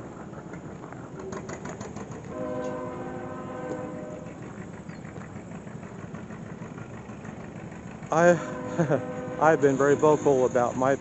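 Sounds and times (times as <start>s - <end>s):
faint rapid clicking: 0.3s - 2.4s, 3.7s - 8.1s.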